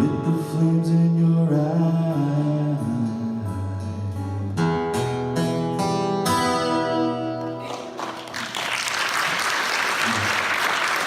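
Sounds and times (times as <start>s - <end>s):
acoustic guitar strumming: 0.0s - 8.0s
applause: 7.4s - 11.0s.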